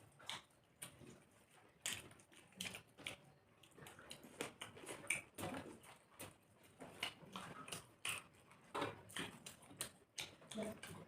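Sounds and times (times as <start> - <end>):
chewing and lip smacking: 0.0 - 11.0.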